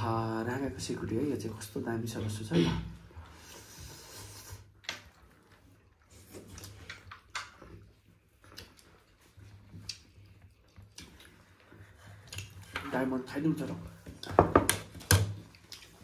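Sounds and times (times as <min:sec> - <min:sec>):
person chewing: 0:03.4 - 0:12.8, 0:15.4 - 0:16.0.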